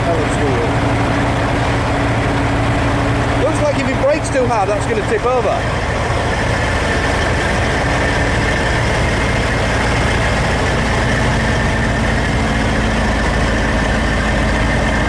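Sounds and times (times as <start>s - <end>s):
heavy truck engine idling: 0.0s - 15.0s.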